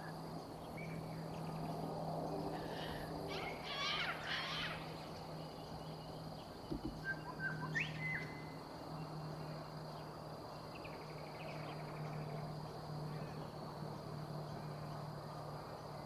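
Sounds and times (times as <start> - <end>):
bird chirps and whistles: 7.0 - 8.4.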